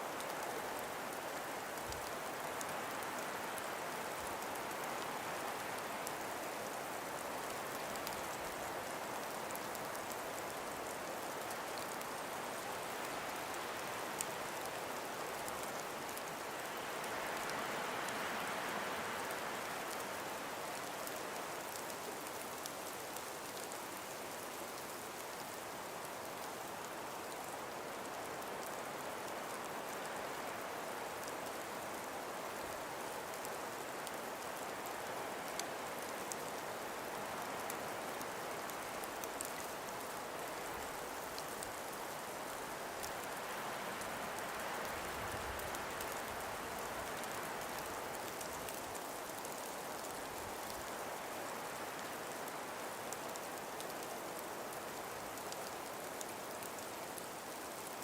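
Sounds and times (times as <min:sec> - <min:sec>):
faint ticks: 0:24.5 - 0:58.0.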